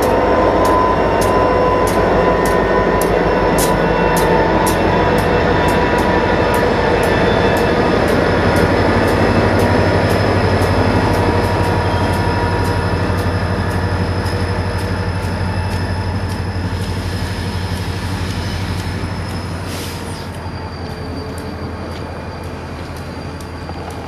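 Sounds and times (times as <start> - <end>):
freight cars rumbling: 0.0 - 24.0
faint wheel squeal: 9.5 - 24.0.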